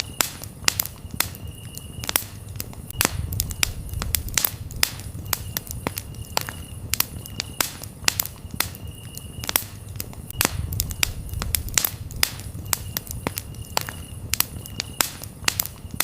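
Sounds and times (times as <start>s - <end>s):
campfire crackling and popping: 0.0s - 16.0s
crickets chirping: 0.0s - 16.0s.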